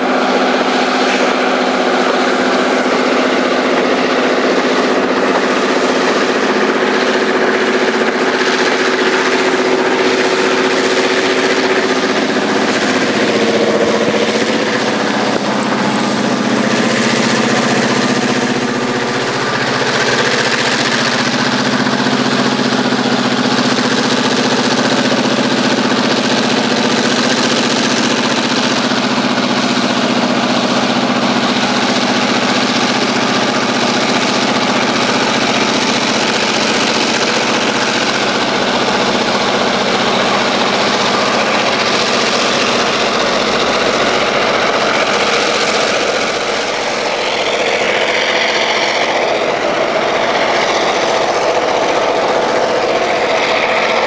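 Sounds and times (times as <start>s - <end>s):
diesel railway engines droning: 0.0s - 54.0s.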